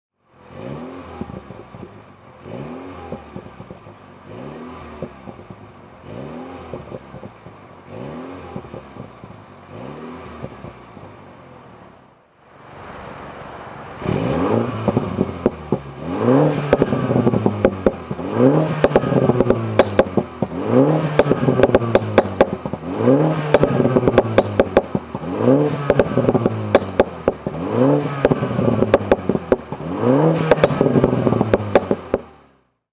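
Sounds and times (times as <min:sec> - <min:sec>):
car engine revving: 0:00.4 - 0:11.1, 0:14.0 - 0:32.6
exhaust crackles and pops: 0:03.0 - 0:04.0, 0:14.0 - 0:32.4.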